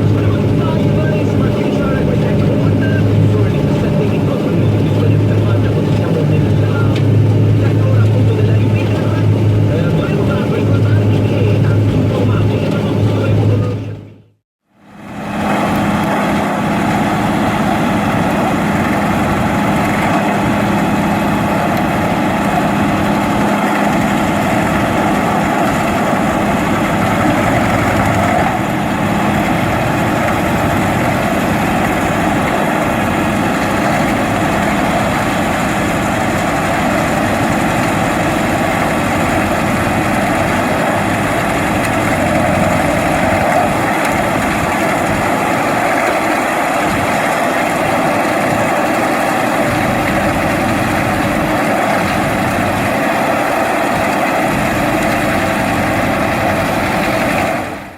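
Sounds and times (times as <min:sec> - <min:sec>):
forestry mulcher machine noise: 0:00.0 - 0:14.1, 0:14.7 - 0:57.9
tractor engine running: 0:00.0 - 0:57.9
steady low hum: 0:15.0 - 0:57.9.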